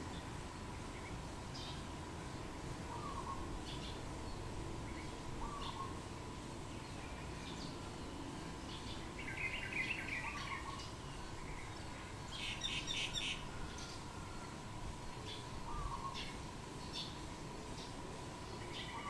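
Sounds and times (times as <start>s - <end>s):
bird chirps: 2.9s - 6.0s, 6.7s - 14.6s, 15.2s - 19.0s
bird whistled call: 5.4s - 6.0s, 9.2s - 11.5s.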